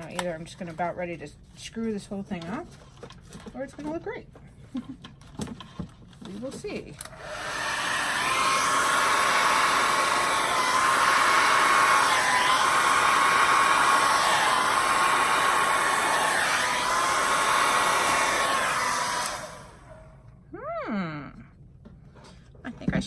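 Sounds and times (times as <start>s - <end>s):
hair dryer blowing air: 7.1s - 20.2s.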